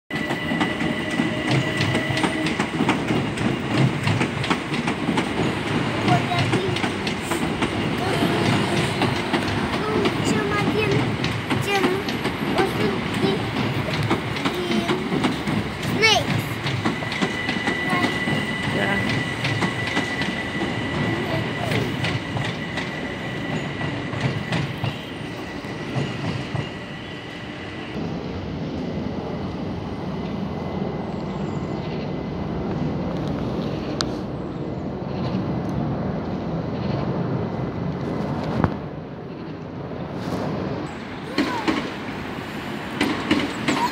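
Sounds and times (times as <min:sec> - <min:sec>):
train wheels clicking over rail joints: 0:00.1 - 0:27.1, 0:40.4 - 0:43.9.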